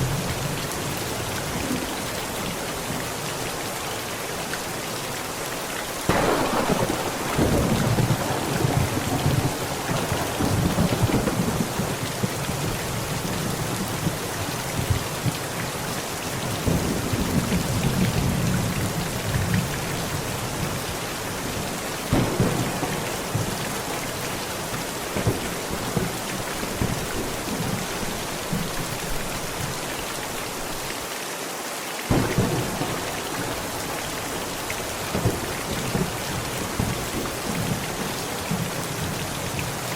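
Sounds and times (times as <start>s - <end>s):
heavy rain on a tent: 0.0s - 39.9s
thunder rumbling: 6.1s - 15.5s, 16.6s - 29.6s, 32.1s - 39.8s.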